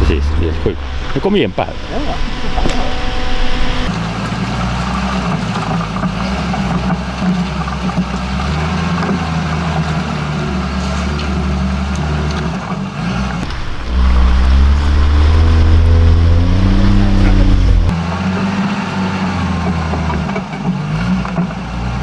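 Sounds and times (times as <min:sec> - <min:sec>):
vehicle engine running under load: 0:00.0 - 0:03.9, 0:13.4 - 0:18.0
churning water: 0:13.4 - 0:18.0.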